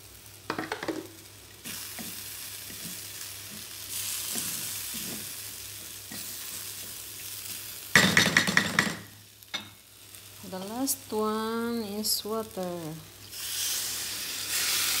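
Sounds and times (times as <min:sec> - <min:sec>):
lentils sizzling in oil: 0:00.0 - 0:15.0
spatula scraping and tapping pot: 0:01.9 - 0:07.0.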